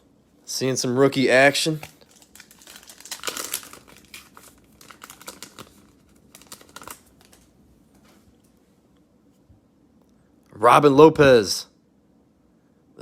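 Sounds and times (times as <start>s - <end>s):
cellophane wrapper crinkling: 1.4s - 8.1s.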